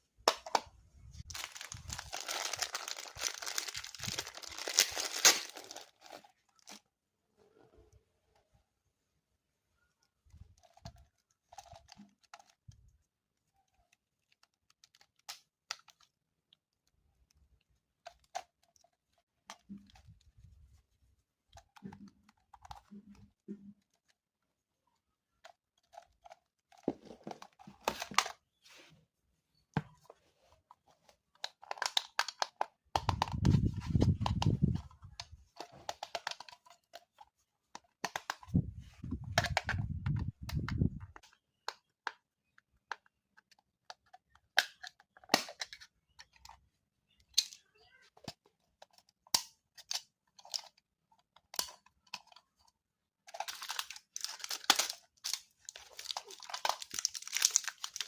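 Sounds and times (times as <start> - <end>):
packaging crinkling and tearing: 1.2 - 6.8, 53.3 - 58.0.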